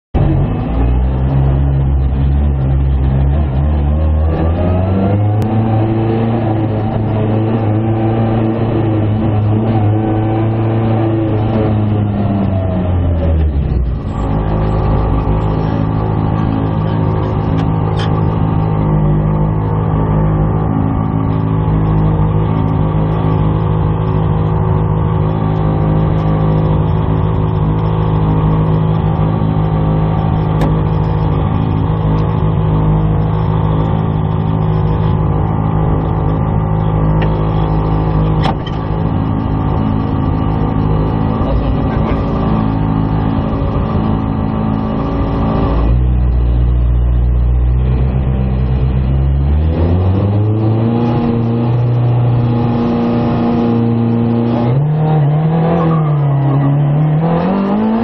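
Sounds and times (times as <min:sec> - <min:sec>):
car engine revving: 0:00.1 - 0:58.0.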